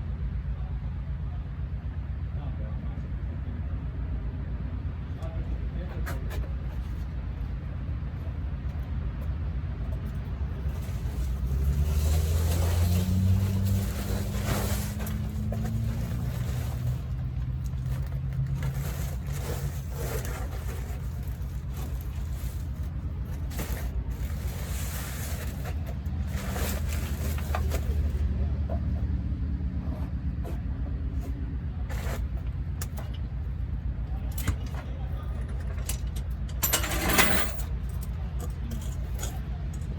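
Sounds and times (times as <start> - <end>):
low engine rumble: 0.0 - 39.9.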